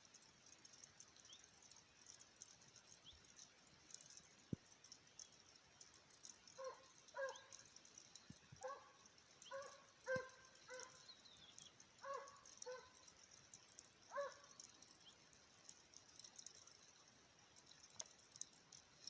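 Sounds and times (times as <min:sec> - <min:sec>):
distant hound baying: 0:09.5 - 0:11.0, 0:12.0 - 0:13.0.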